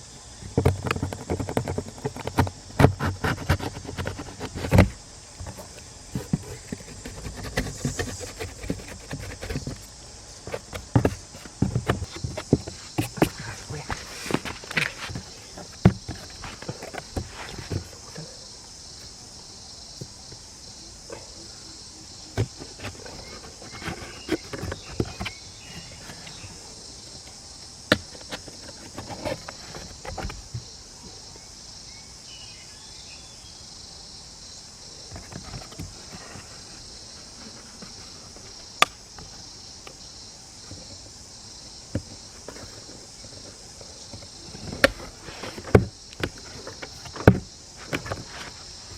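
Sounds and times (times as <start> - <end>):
high insect chirring: 0.0 - 30.8.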